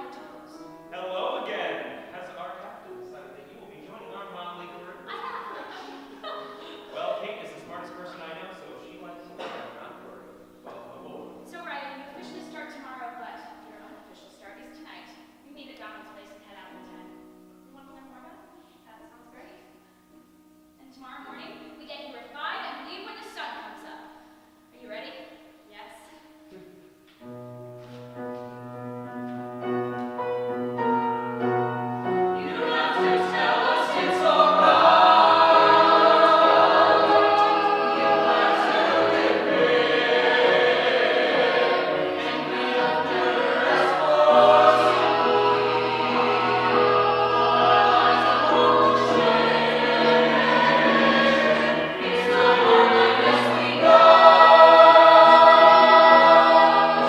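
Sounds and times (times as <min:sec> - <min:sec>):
voices singing in harmony: 0:00.0 - 0:11.3, 0:32.0 - 0:57.0.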